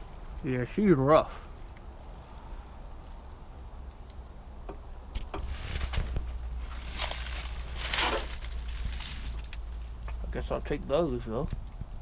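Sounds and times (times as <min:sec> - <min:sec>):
low microphone rumble: 0:00.0 - 0:12.0
footsteps through dry brush: 0:05.4 - 0:10.2.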